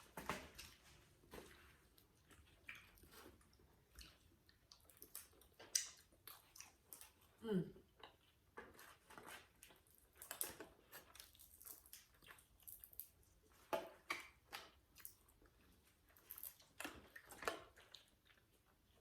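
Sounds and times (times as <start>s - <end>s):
person chewing: 0.1s - 19.0s
wet lip smacks and clicks: 4.0s - 7.2s.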